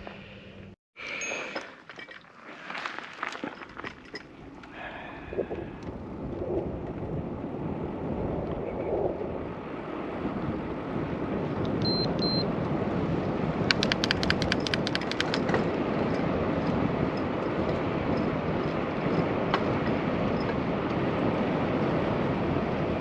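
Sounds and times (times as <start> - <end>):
bicycle wind and tyre noise: 0.0 - 23.0
short high beeps: 11.8 - 12.4
rapid sharp ticks: 13.7 - 15.6.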